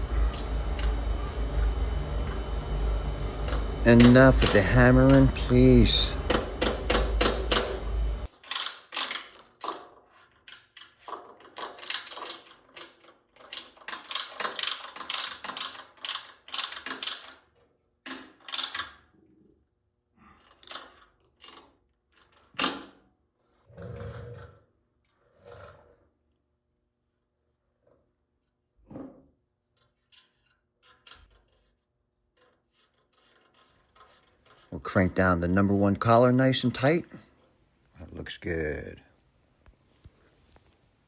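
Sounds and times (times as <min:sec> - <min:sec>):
loud low rumble: 0:00.0 - 0:08.3.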